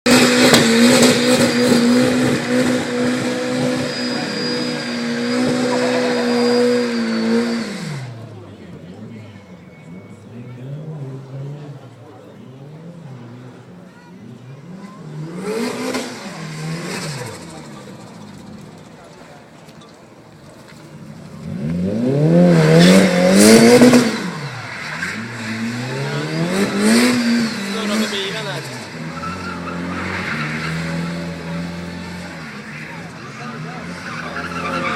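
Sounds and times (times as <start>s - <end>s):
car engine at high revs: 0.0s - 19.7s, 20.7s - 34.9s
tyres squealing and hissing: 3.6s - 7.8s, 24.3s - 31.4s, 32.6s - 34.9s.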